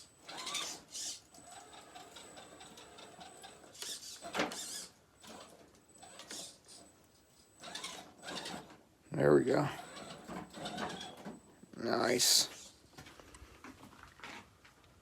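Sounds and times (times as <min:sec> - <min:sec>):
electric motor whirring: 0:00.0 - 0:06.9, 0:07.6 - 0:08.7, 0:09.4 - 0:11.2.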